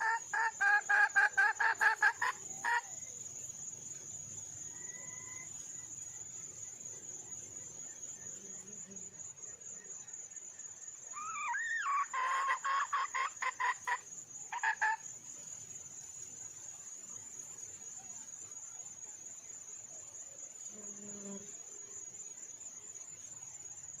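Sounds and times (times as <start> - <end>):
hen calling and clucking: 0.0 - 2.9, 11.2 - 15.0
high insect drone: 0.0 - 24.0.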